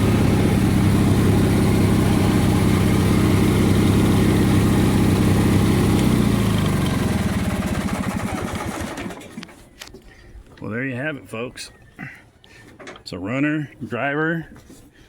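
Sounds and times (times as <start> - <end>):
tractor engine idling: 0.0 - 9.7.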